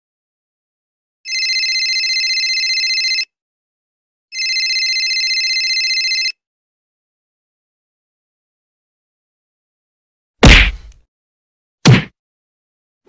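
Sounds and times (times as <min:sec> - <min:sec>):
telephone ringing: 0:01.3 - 0:03.3, 0:04.3 - 0:06.4.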